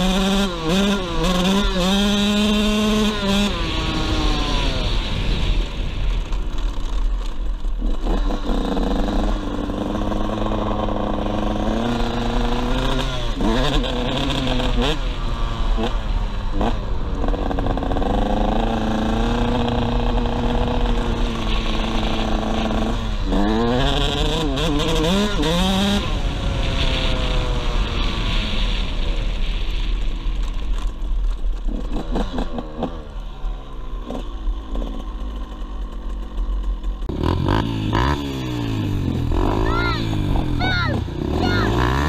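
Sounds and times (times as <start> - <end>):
dirt bike engine revving: 0.0 - 29.5, 31.6 - 42.0
low wind rumble: 2.2 - 24.6.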